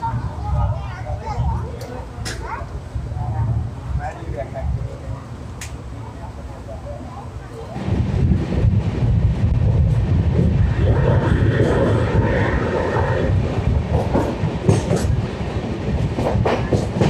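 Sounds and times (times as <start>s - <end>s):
train wheels rumbling on track: 0.0s - 17.0s
wheels clicking over rail joints: 13.5s - 17.0s.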